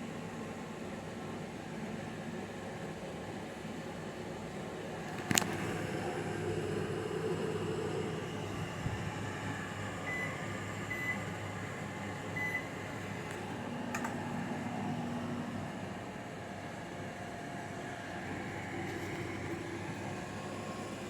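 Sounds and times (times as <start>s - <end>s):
microwave oven humming: 0.0s - 21.0s
microwave click: 12.4s - 14.3s.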